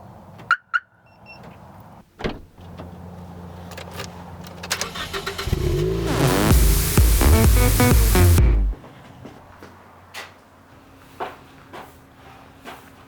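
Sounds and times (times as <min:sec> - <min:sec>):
thump: 0:02.2 - 0:02.5
car engine starting and running: 0:03.7 - 0:08.8
electronic music: 0:05.5 - 0:08.8.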